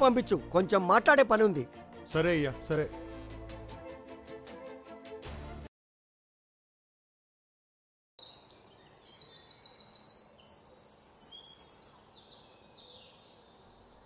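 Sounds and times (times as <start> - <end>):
bird fast trill: 8.2 - 14.0
birds chirping and calling: 8.2 - 14.0.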